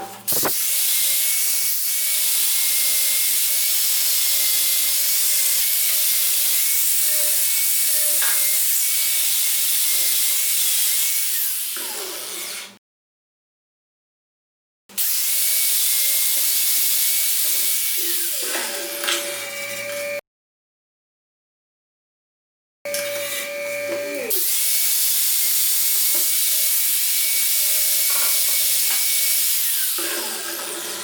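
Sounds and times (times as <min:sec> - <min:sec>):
electric power tool grinding: 0:00.3 - 0:00.6, 0:17.8 - 0:20.2, 0:22.9 - 0:26.4.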